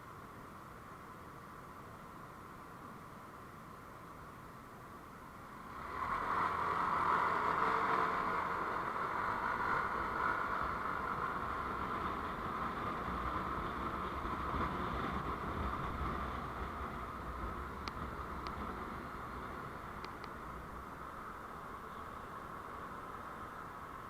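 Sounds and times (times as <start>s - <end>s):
road vehicle rushing: 5.4s - 24.0s.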